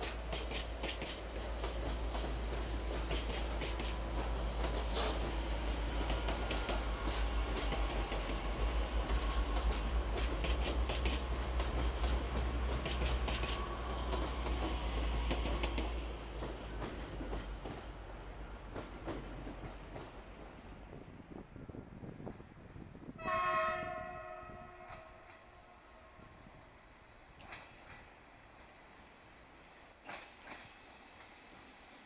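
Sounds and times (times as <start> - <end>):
train wheels clicking over rail joints: 0.0 - 20.8, 27.3 - 32.0
train low rumble: 0.0 - 32.0.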